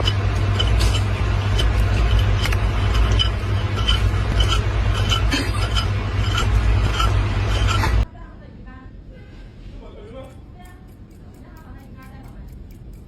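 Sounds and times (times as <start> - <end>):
steady low rumble: 0.0 - 9.1
light clinks and ticks: 10.2 - 13.0.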